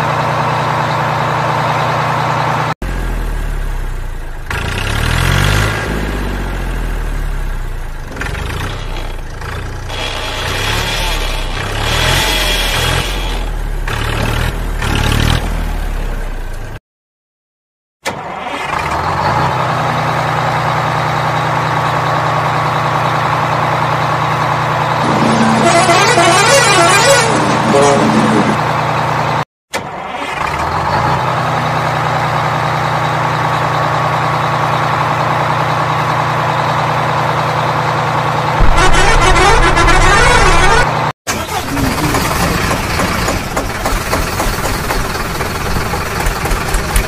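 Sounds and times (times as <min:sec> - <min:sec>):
vehicle engine revving and idling: 0:00.0 - 0:16.8, 0:30.3 - 0:47.0.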